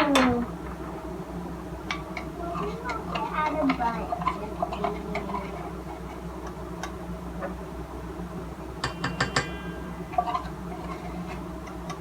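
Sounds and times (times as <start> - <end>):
utensil clinking against bowl: 1.9 - 5.8, 8.8 - 11.1.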